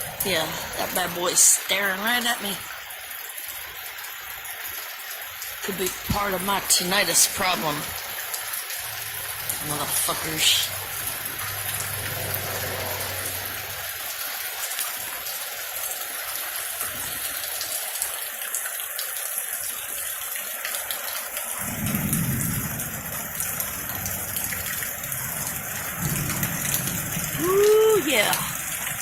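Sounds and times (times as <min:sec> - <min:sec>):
heavy rain falling: 0:00.0 - 0:29.0
low thunder rumble: 0:08.8 - 0:14.0, 0:21.6 - 0:29.0.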